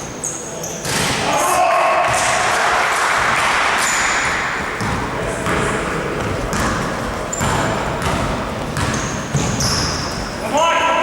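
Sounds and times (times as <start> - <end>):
sneaker squeaks: 0.0 - 1.2, 3.8 - 10.5
murmur of voices echoing: 0.0 - 11.0
basketball bouncing on court: 2.0 - 2.4, 3.2 - 10.4.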